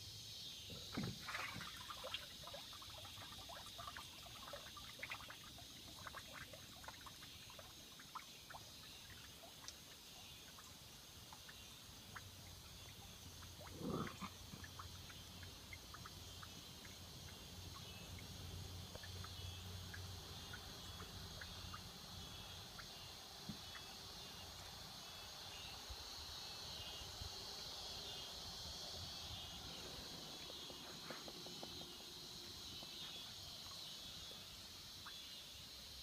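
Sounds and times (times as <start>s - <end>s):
cicadas droning: 0.0s - 36.0s
small ticks: 2.1s - 10.7s.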